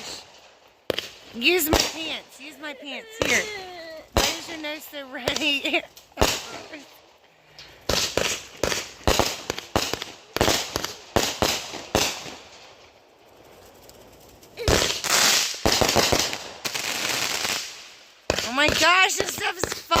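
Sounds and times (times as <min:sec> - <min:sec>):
firecracker crackling bursts: 0:00.0 - 0:20.0
firecrackers banging: 0:00.0 - 0:20.0.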